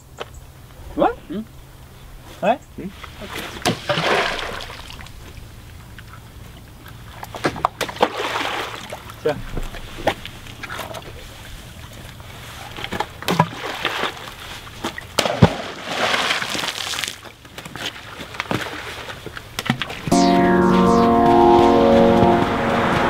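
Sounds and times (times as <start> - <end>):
music: 20.1 - 23.0.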